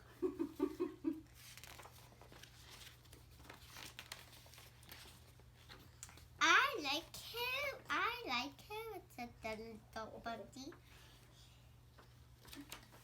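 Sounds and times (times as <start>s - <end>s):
paper pages rustling: 1.3s - 6.4s, 11.9s - 13.0s
child's voice: 6.4s - 10.8s.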